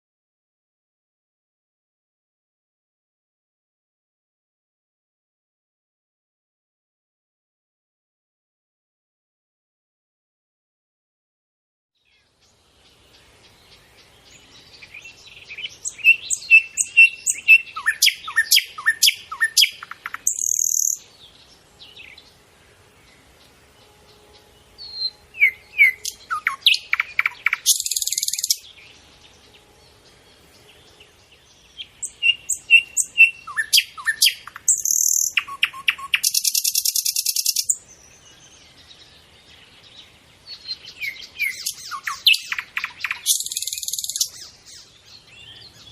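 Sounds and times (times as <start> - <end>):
songbird singing: 12.0 - 45.9.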